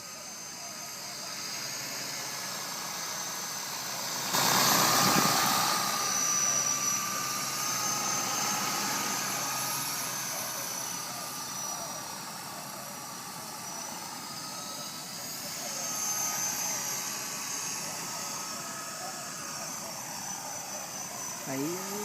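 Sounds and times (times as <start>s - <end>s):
model helicopter motor whine: 0.0s - 22.0s.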